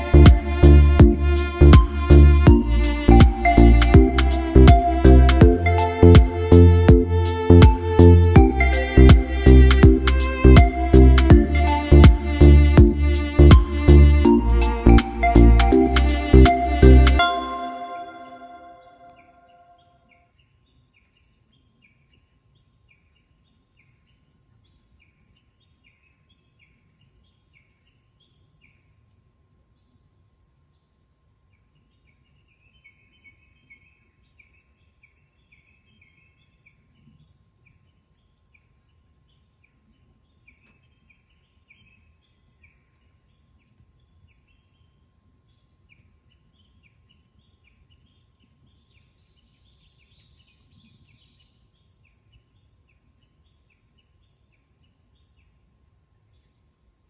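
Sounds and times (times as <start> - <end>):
low background rumble: 0.0 - 17.2
bird chirping: 0.0 - 28.8.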